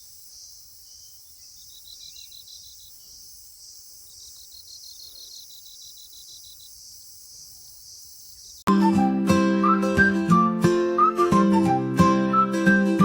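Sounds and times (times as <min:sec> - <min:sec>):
high-pitched insect chirps: 0:00.0 - 0:08.7
insect chorus: 0:00.0 - 0:08.7.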